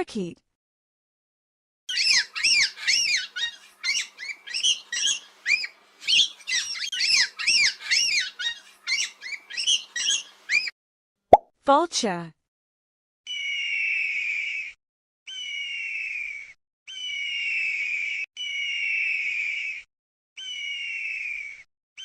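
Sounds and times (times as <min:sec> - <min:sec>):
parakeet chirping: 0:01.9 - 0:10.7.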